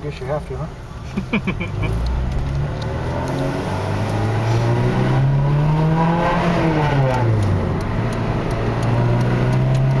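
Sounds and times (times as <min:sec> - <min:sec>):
car engine accelerating: 0:01.6 - 0:10.0.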